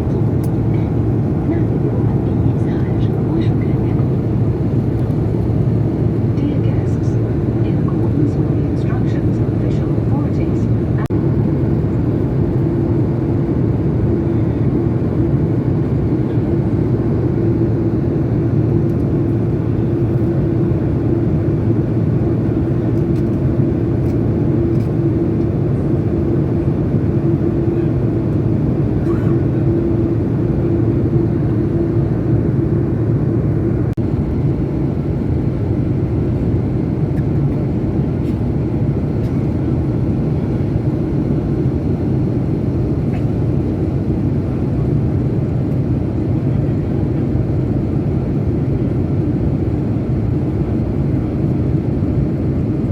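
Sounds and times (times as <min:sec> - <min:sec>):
aircraft engines droning: 0:00.0 - 0:52.9.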